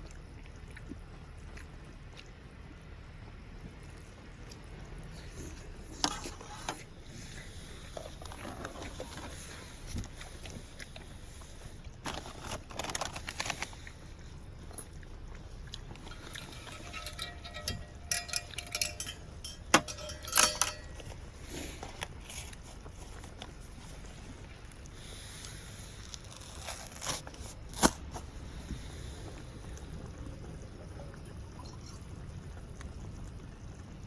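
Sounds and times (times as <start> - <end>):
faint steady hiss: 0.0 - 34.0
packaging rustling: 12.0 - 13.7
cooking gear clicking and knocking: 15.9 - 21.3.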